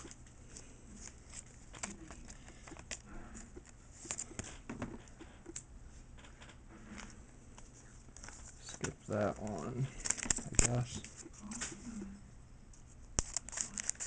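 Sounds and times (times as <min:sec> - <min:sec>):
trading cards being shuffled: 0:07.0 - 0:12.0, 0:13.2 - 0:14.0.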